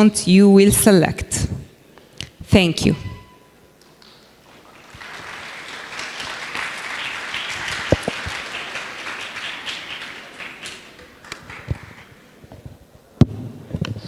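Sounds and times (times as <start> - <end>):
audience applauding: 4.5 - 12.4.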